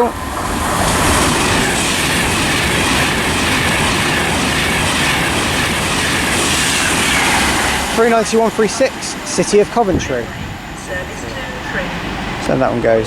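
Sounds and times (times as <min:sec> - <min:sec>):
train passing at speed: 0:00.0 - 0:13.0.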